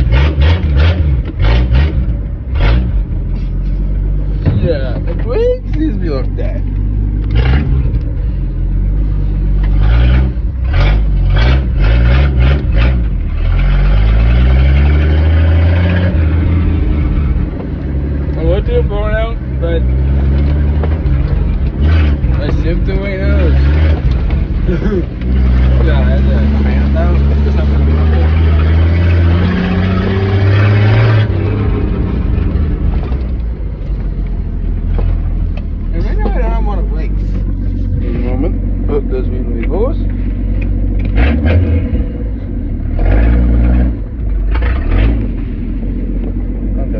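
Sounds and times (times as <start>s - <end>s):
truck engine revving: 0.0s - 46.9s.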